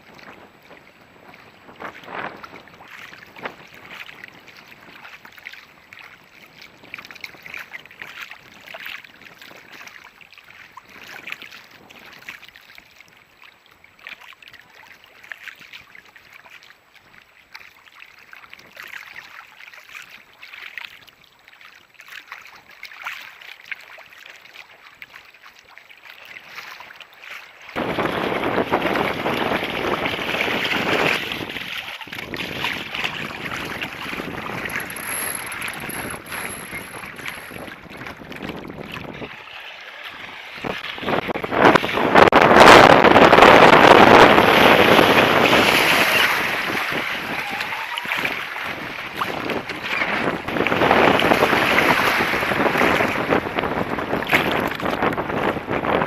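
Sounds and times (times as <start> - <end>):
wind buffeting microphone: 0.0 - 5.2, 27.8 - 56.0
water splashing along boat hull: 0.0 - 56.0.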